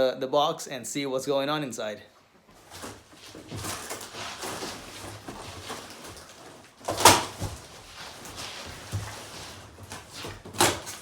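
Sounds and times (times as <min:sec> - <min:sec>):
cardboard ripping: 0:02.5 - 0:11.0
cardboard scraping and rustling: 0:02.5 - 0:11.0.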